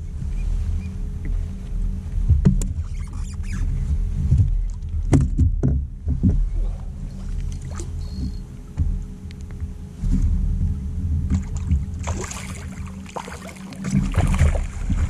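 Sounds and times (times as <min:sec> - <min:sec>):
steady low hum: 0:00.0 - 0:15.0
handling knocks and thumps: 0:02.3 - 0:02.8, 0:04.3 - 0:06.8.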